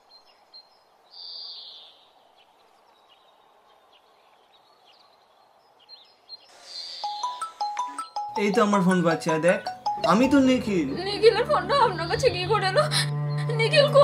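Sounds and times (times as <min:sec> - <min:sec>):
high hissing chirp: 0:06.0 - 0:08.8.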